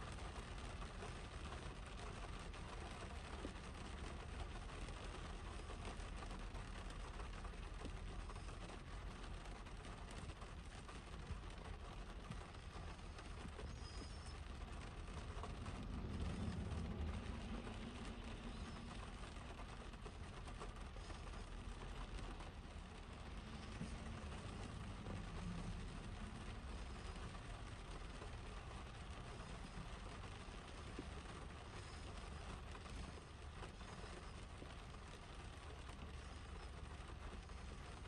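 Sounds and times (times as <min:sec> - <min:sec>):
rain on car windshield: 0:00.0 - 0:38.0
low rumble: 0:13.0 - 0:33.0.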